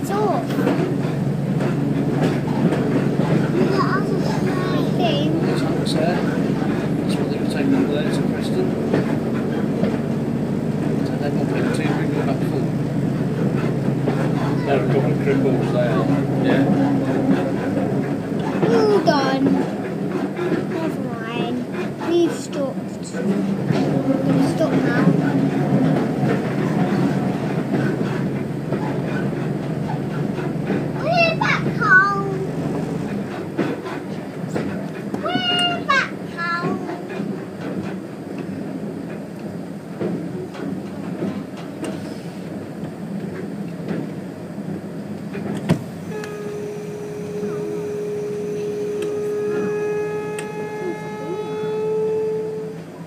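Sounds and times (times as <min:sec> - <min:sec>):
wheels clicking over rail joints: 0:00.0 - 0:46.5
railbus engine drone: 0:00.0 - 0:53.0
steady whine: 0:45.7 - 0:53.0.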